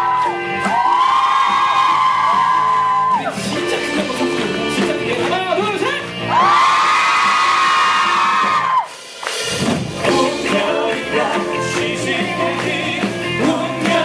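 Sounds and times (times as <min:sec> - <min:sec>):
band accompaniment: 0:00.0 - 0:14.0
voices singing in harmony: 0:10.0 - 0:14.0.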